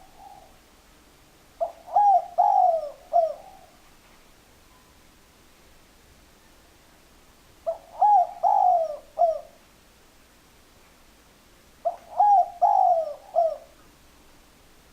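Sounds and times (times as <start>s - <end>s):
dove cooing: 0.0s - 0.6s, 1.6s - 3.8s, 7.6s - 9.6s, 11.8s - 13.8s.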